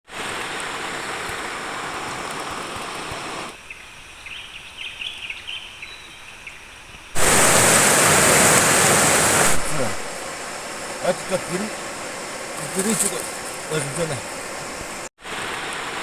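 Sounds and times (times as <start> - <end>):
river water rushing: 0.1 - 3.6, 7.2 - 16.0.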